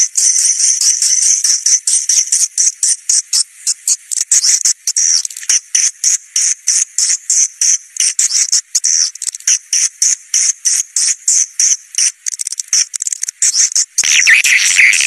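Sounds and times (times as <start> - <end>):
high-pitched swiftlet chirps: 14.0 - 15.0
lower bird twittering: 14.0 - 15.0.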